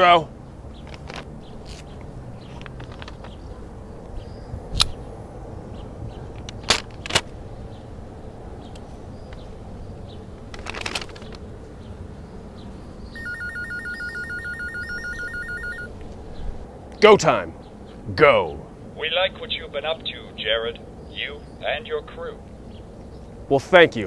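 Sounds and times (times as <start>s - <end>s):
sharp clicks: 4.7s - 5.0s
phone ringing warbling ringtone: 13.2s - 15.9s.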